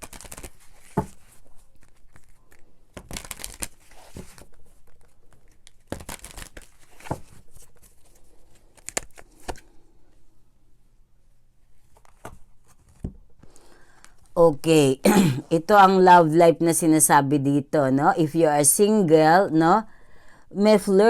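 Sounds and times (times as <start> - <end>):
paper rustling and crinkling: 0.0 - 9.7.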